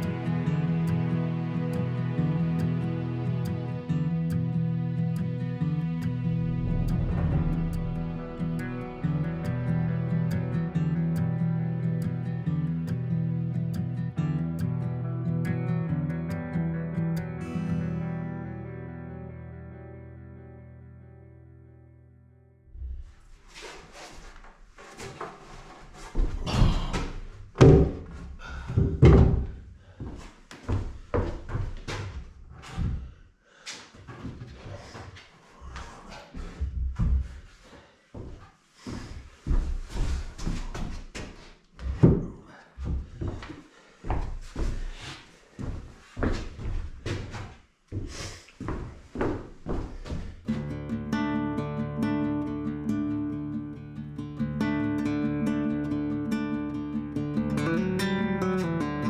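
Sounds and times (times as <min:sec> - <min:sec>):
knocks and thuds: 0:26.2 - 0:28.1, 0:28.8 - 0:29.6
knocks and thumps on wood: 0:27.6 - 0:28.1.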